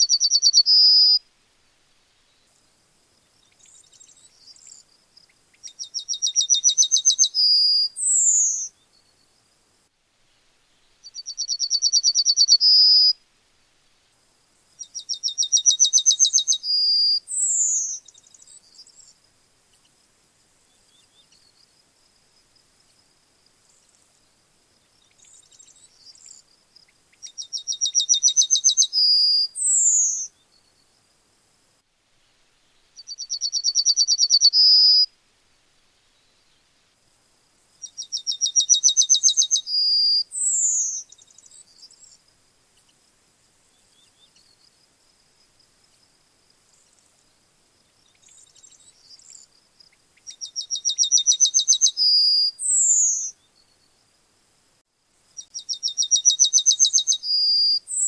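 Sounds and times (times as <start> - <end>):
bird singing: 0.0 - 1.2, 3.2 - 9.3, 10.8 - 13.2, 14.8 - 19.2, 24.8 - 30.9, 32.7 - 35.1, 37.8 - 42.2, 48.0 - 54.0, 55.4 - 58.0.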